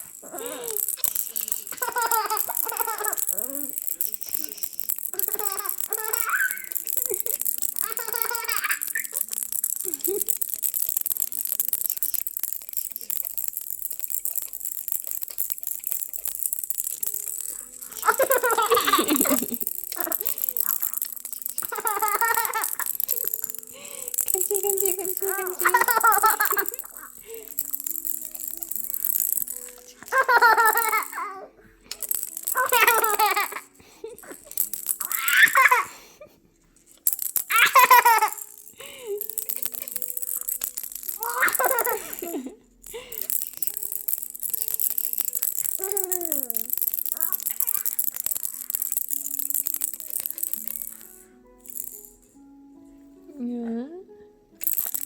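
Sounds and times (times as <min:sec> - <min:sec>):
toy rattle shaken: 0:00.0 - 0:36.0, 0:36.6 - 0:52.6, 0:54.6 - 0:55.0
baby giggling: 0:01.7 - 0:03.7, 0:18.0 - 0:20.6
baby's voice: 0:45.8 - 0:47.9.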